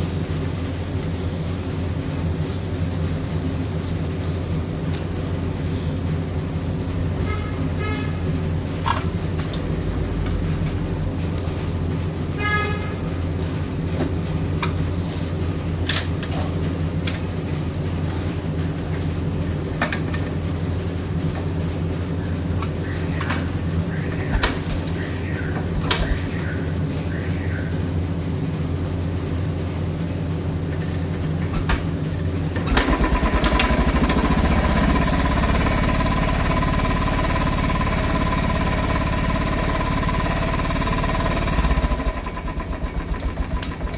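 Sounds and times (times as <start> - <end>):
motorcycle engine idling: 22.0 - 43.9.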